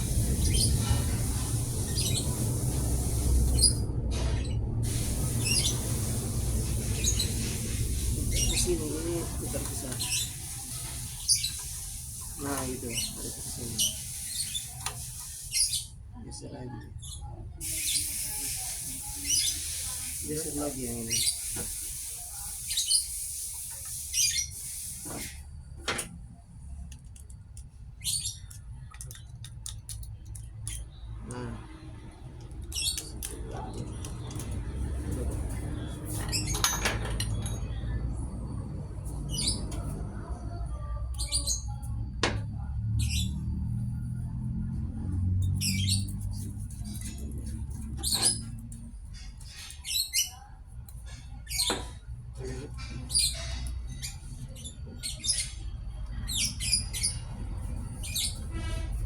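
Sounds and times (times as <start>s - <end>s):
low machine hum: 0.0s - 10.6s
high-pitched chirps or squeaks: 0.0s - 16.0s, 35.8s - 37.7s, 45.4s - 50.5s, 52.8s - 59.0s.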